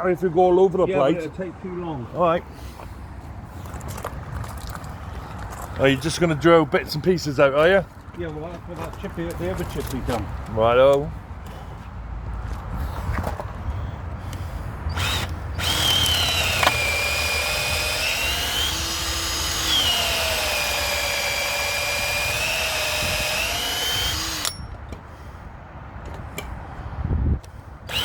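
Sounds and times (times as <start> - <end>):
electric drill boring into wood: 14.9 - 24.6.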